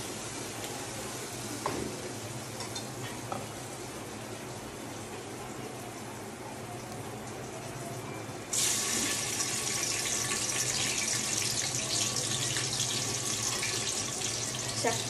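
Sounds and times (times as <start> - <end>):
onions sizzling in hot oil: 0.0 - 4.5, 8.5 - 15.0.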